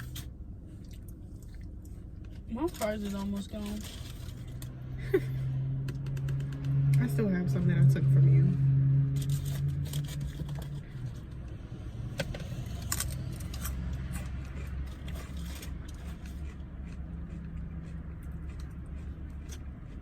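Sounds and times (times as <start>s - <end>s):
car hum: 0.0s - 20.0s
food packaging rustling: 2.7s - 4.7s.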